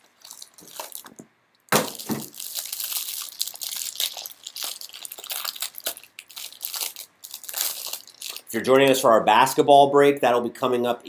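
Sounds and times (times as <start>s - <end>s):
wrapper and cardboard crinkling: 0.0s - 9.0s
sharp crack: 1.7s - 2.6s.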